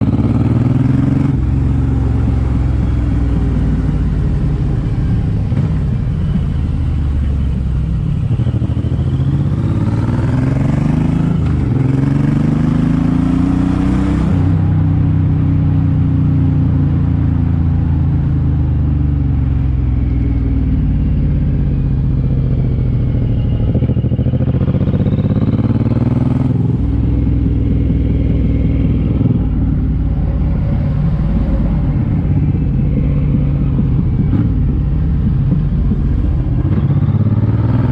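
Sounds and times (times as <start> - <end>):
motorcycle engine shifting gears: 0.0 - 37.9.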